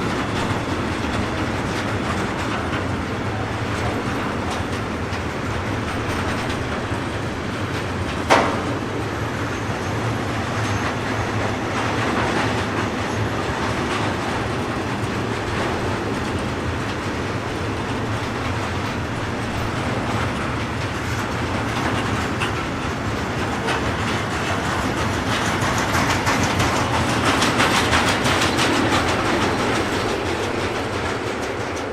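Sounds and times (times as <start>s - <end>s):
train wheels clattering: 0.0s - 31.9s.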